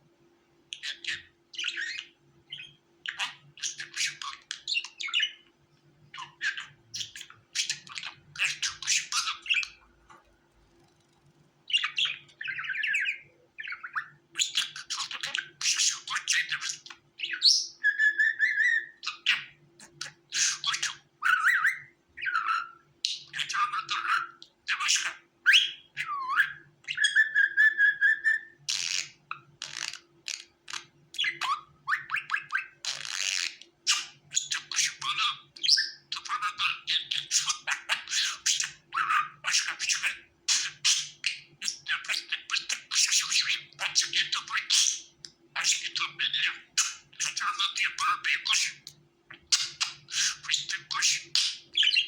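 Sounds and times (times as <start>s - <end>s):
budgerigar chattering and warbling: 0.8s - 5.4s, 6.2s - 9.8s, 11.7s - 52.0s.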